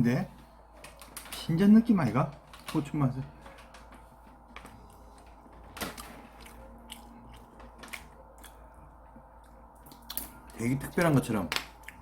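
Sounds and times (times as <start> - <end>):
person chewing food: 3.7 - 10.6, 11.6 - 12.0.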